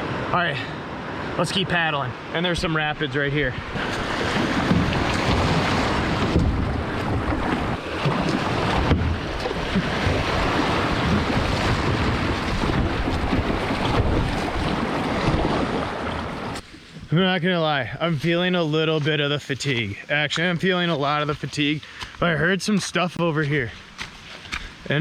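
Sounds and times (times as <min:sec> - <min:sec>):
whitewater rushing: 0:00.0 - 0:16.6
wind buffeting microphone: 0:03.4 - 0:17.1.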